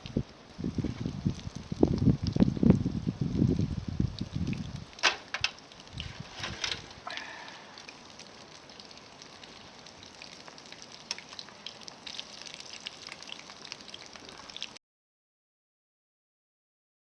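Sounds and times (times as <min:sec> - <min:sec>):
oil popping: 0:00.0 - 0:14.8
seafood sizzling in hot oil: 0:04.7 - 0:14.7.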